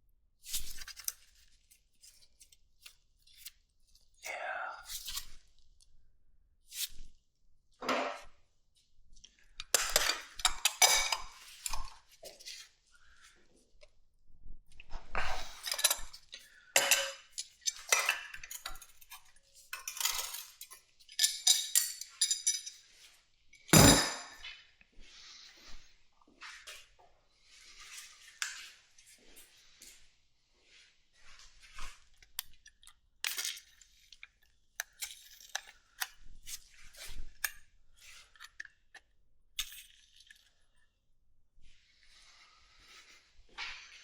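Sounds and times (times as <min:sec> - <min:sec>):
tools and metal parts clinking: 0:09.8 - 0:11.8, 0:15.6 - 0:16.2, 0:16.8 - 0:22.8, 0:23.6 - 0:24.4.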